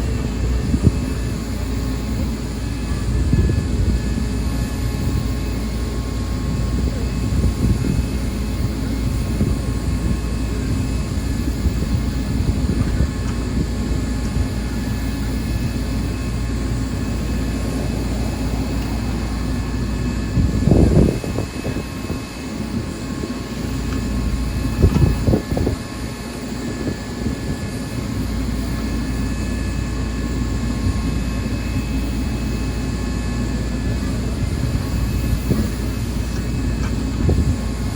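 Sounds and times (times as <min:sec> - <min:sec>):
heavy vehicle engine rumbling: 0:00.0 - 0:25.8.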